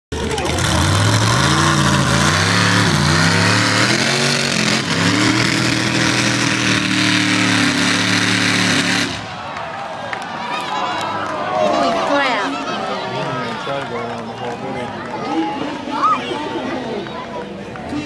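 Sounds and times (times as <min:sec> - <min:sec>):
monster truck engine revving: 0:00.1 - 0:09.4.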